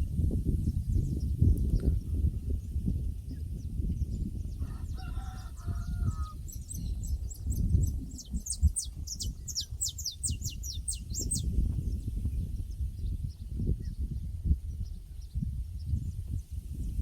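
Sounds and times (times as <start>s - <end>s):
small bird chirping song: 0.5s - 16.7s
domestic fowl calling: 4.6s - 6.4s.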